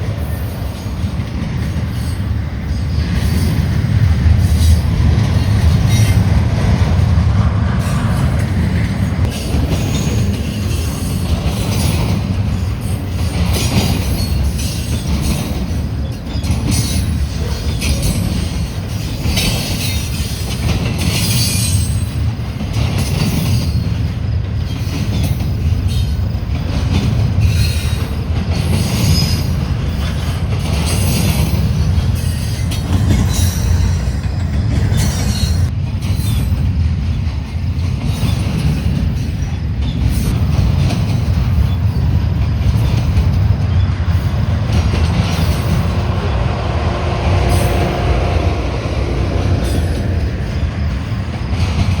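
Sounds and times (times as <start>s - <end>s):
train wheels rumbling on rail: 0.0s - 52.0s
wheel squeal and clatter: 9.3s - 22.4s, 27.4s - 36.6s.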